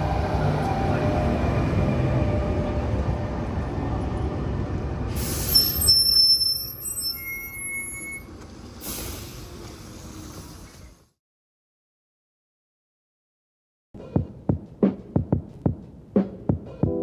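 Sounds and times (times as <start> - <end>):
tram wheels squealing: 0.0 - 11.0
tram rumbling: 0.0 - 11.1.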